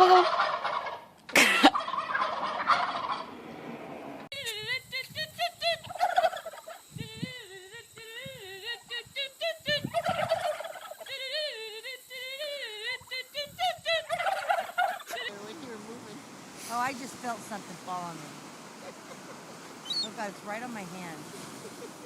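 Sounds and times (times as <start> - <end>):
turkeys gobbling: 0.0 - 3.4, 5.6 - 6.9, 9.7 - 11.2, 13.0 - 15.6, 18.4 - 20.2.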